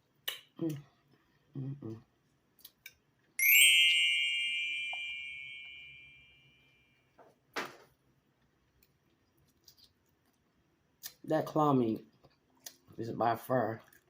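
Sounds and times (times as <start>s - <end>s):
bright metallic ding: 3.4s - 6.4s.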